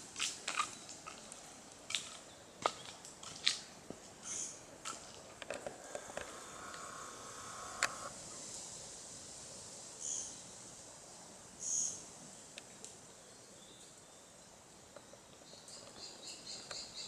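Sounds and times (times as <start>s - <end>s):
footsteps on twigs and leaves: 0.2s - 6.1s.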